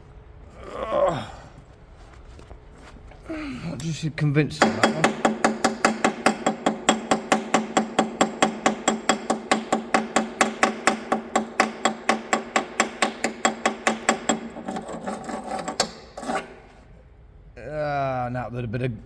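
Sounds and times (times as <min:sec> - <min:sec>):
hammer striking metal: 0:04.6 - 0:14.9.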